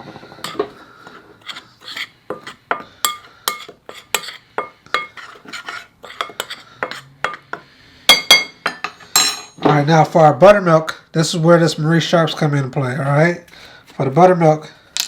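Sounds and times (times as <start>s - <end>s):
metal utensil stirring in bowl: 1.4s - 7.4s.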